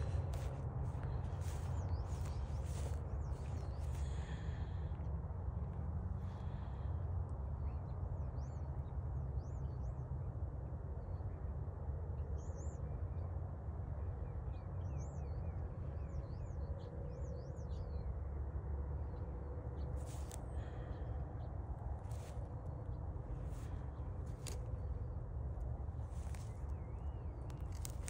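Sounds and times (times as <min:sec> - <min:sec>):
small birds chirping: 0:00.0 - 0:05.0, 0:19.8 - 0:28.0
steady low rumble: 0:00.0 - 0:28.0.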